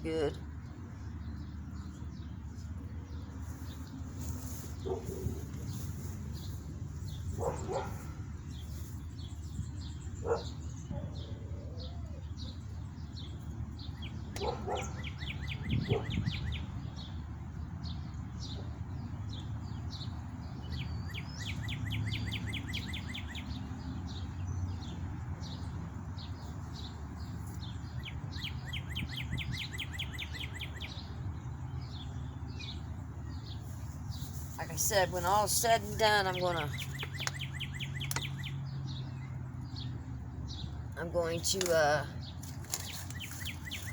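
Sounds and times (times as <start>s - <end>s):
wind rumble on microphone: 0.0s - 41.0s
songbirds singing and chirping: 0.0s - 43.9s.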